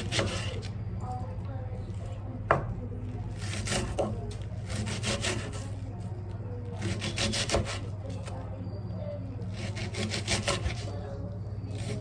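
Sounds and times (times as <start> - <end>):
knife sawing on cutting board: 0.0 - 0.7, 3.4 - 5.7, 6.8 - 7.9, 9.5 - 10.9.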